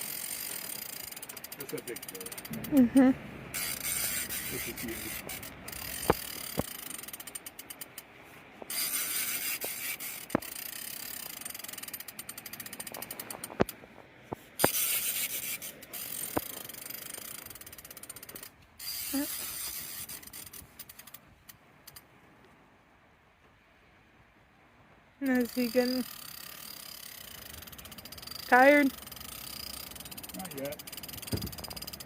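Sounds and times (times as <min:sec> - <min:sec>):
fishing reel drag clicking: 0:00.0 - 0:02.8, 0:03.5 - 0:08.1, 0:08.7 - 0:13.8, 0:14.6 - 0:22.0, 0:25.4 - 0:32.0
sharp knocks: 0:31.3 - 0:31.7.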